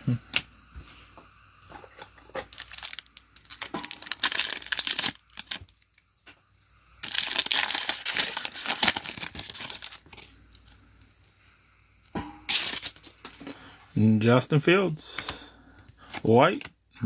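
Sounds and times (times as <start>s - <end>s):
foil wrappers tearing and crinkling: 2.3s - 6.1s, 7.0s - 10.8s, 12.5s - 13.3s.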